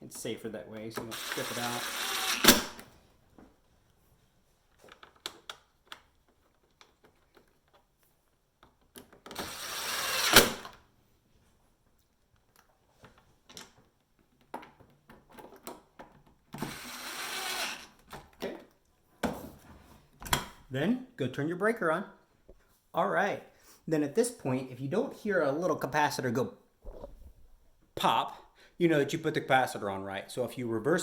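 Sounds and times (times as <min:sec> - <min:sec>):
screwdriver driving screws into plastic: 0:01.0 - 0:02.8.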